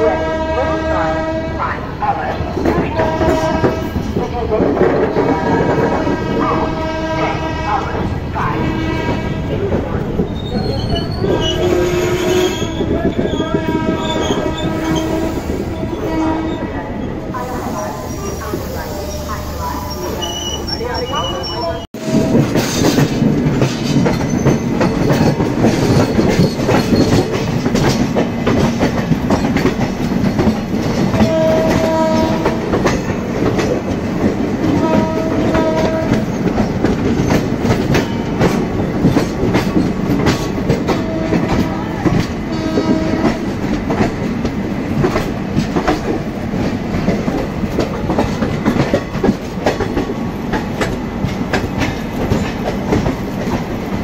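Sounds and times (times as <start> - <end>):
locomotive horn blasts: 0.0 - 1.7, 3.0 - 3.9, 5.4 - 9.5, 11.4 - 16.7, 31.2 - 32.6, 34.8 - 36.3, 40.9 - 43.4
train wheels rumbling and clattering: 0.0 - 54.0.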